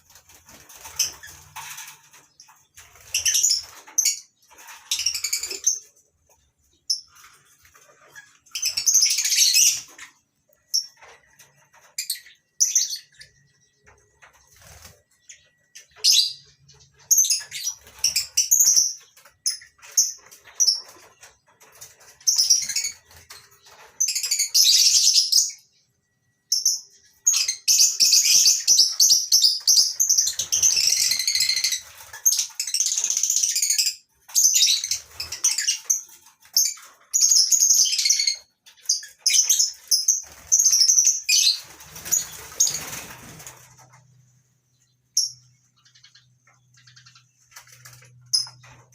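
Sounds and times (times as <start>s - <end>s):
lovebirds chattering: 26.5s - 48.9s.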